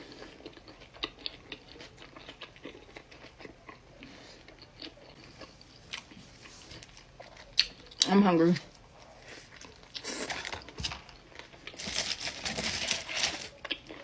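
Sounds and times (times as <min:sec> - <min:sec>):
person chewing burger: 0:00.0 - 0:08.0, 0:13.5 - 0:14.0.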